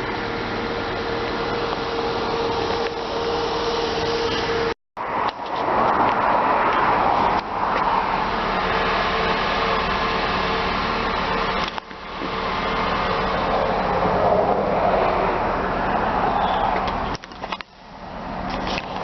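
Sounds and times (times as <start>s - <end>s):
car engine idling: 0.0s - 4.8s, 5.9s - 19.0s.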